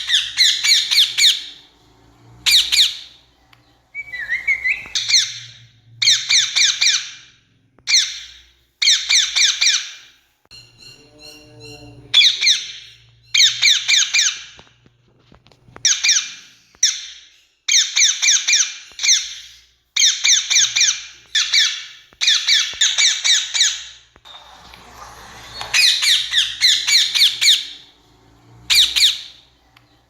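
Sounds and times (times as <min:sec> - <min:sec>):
parakeet screeching calls: 0:00.0 - 0:01.6, 0:02.4 - 0:03.2, 0:04.0 - 0:07.3, 0:25.3 - 0:27.9, 0:28.7 - 0:29.5.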